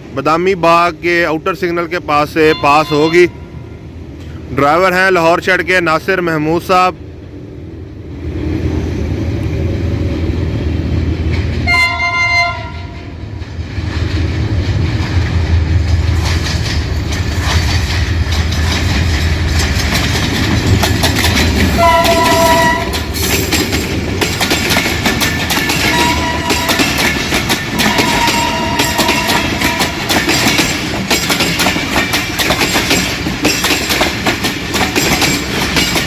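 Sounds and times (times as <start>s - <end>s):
diesel locomotive engine drone: 0.0s - 36.0s
two-tone train horn blast: 2.5s - 3.9s, 11.6s - 13.1s, 21.8s - 23.1s, 25.9s - 27.0s, 27.8s - 30.1s
train wheels clattering over rail joints: 13.3s - 36.0s.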